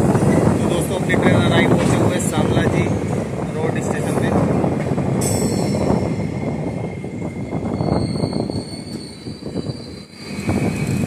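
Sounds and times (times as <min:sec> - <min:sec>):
train coaches rolling on rails: 0:00.0 - 0:11.0
thin high squeal: 0:07.3 - 0:10.8.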